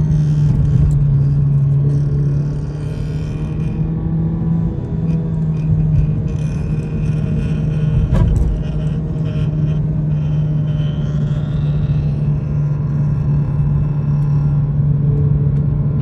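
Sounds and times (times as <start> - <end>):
low drone: 0.0 - 16.0
car rattle clicks and knocks: 0.4 - 1.5, 7.9 - 9.0.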